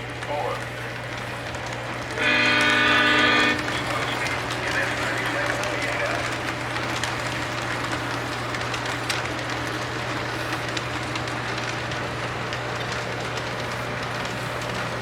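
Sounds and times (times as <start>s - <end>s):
model train diesel engine rumble: 0.0s - 15.0s
wheels clicking on track: 0.0s - 15.0s.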